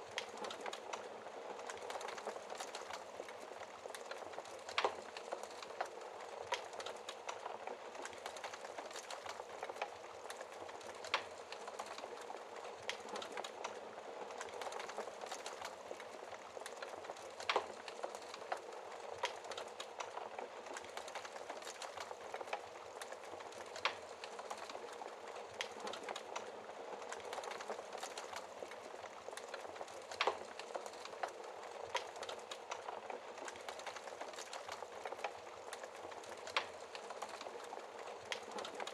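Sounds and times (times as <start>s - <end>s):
wood fire crackling: 0.0s - 38.9s
fire pops: 27.0s - 38.9s.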